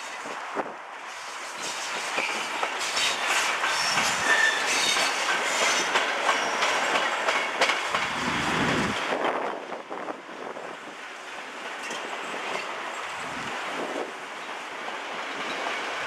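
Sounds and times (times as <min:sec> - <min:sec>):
train wheels clacking: 0:01.2 - 0:08.2
high metallic squealing: 0:03.0 - 0:06.8.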